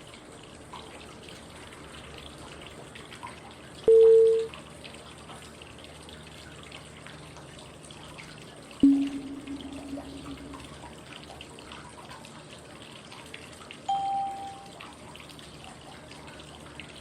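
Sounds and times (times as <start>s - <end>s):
pitched prompt tone: 3.9s - 4.5s, 8.8s - 11.0s, 13.9s - 14.7s
flowing water white noise: 8.8s - 11.6s, 13.9s - 14.8s.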